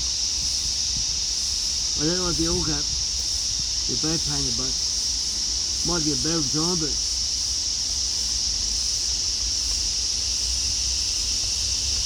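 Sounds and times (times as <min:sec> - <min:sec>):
high-pitched hiss: 0:00.0 - 0:12.0.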